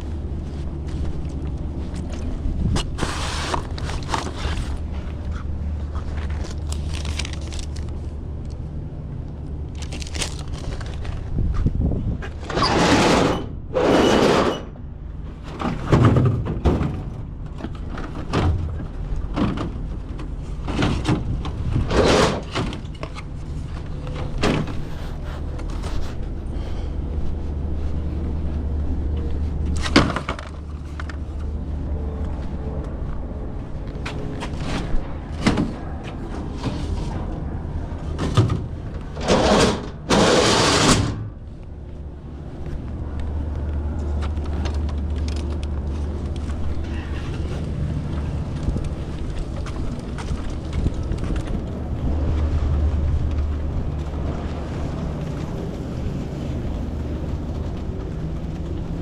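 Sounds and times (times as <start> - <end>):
steady low hum: 0.0 - 59.0
knocks and clatter of handling: 15.4 - 24.8.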